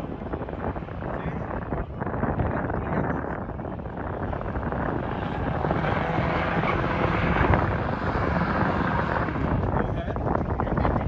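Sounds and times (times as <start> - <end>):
truck engine running hard: 3.8 - 11.0.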